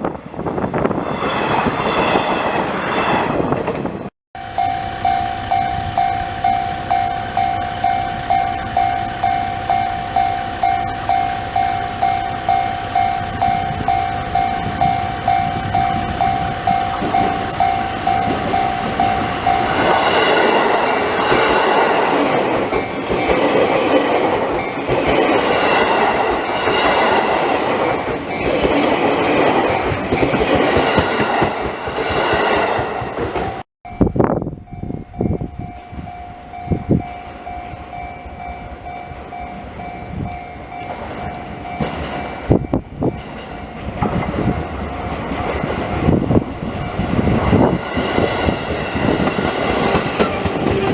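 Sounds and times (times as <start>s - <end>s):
level-crossing alarm bell dinging: 4.4s - 31.4s, 33.4s - 50.9s
train wheels clacking over rails: 5.5s - 33.6s, 39.3s - 50.9s.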